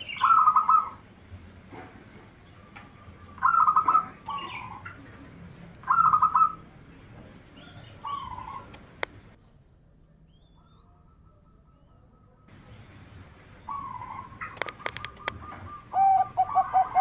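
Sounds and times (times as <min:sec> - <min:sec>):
dove cooing: 0:00.0 - 0:01.0, 0:02.5 - 0:06.7, 0:07.5 - 0:09.4, 0:10.6 - 0:17.0.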